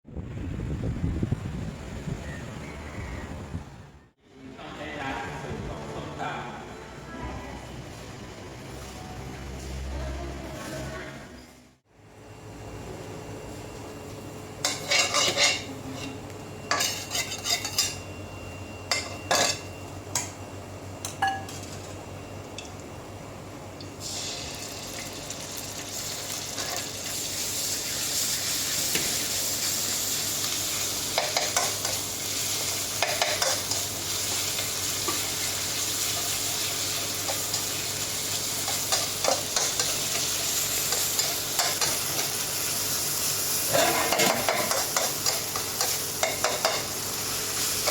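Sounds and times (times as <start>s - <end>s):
metal spatula scraping pan: 14.6s - 18.0s
omelette sizzling in oil: 24.0s - 43.8s.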